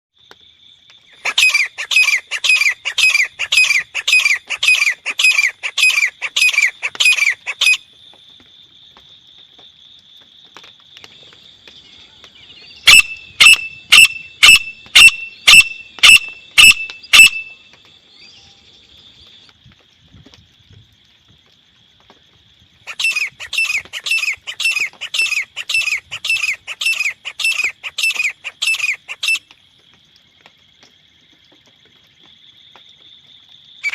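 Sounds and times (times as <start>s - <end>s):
francolin calling: 1.0s - 7.9s, 11.8s - 18.7s, 22.8s - 29.5s.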